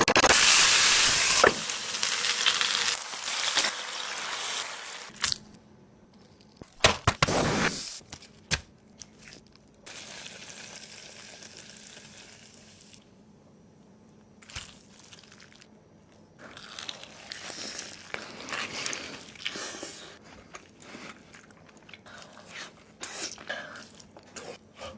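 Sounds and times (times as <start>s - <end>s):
food sizzling: 0.2s - 5.2s, 9.9s - 13.0s.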